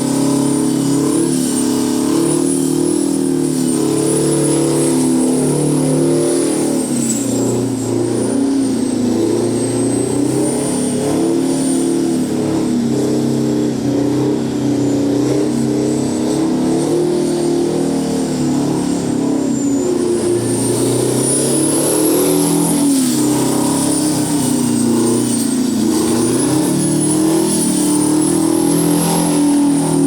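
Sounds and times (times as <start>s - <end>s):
diesel engine at high revs: 0.0s - 30.0s
thin high whine: 18.2s - 30.0s.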